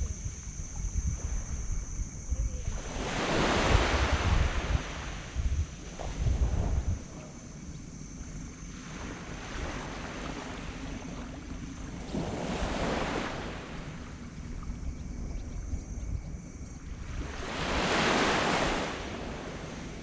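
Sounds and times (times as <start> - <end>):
small waves washing onto sand: 2.6 - 7.3, 8.7 - 14.6, 17.0 - 20.0.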